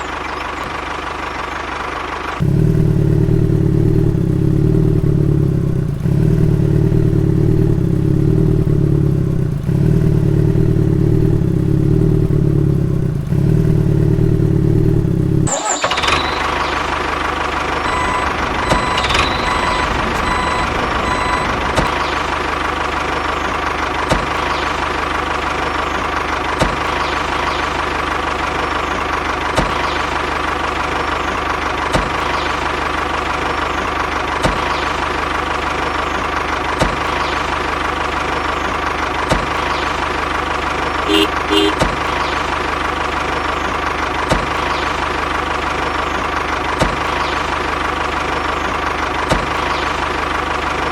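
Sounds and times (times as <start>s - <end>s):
bright steady engine: 0.0s - 50.9s
tractor engine pulsing: 3.0s - 28.4s, 39.9s - 50.6s.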